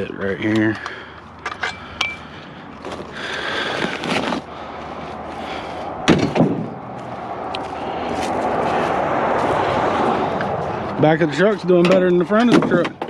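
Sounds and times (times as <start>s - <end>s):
scrap rattling and scraping: 2.8s - 4.5s
loud knocks: 6.0s - 6.7s.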